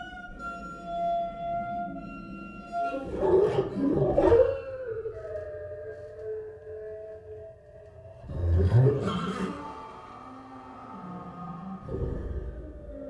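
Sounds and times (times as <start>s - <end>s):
electronic drones: 8.2s - 13.0s
swirling electronic sound cluster: 8.5s - 13.0s.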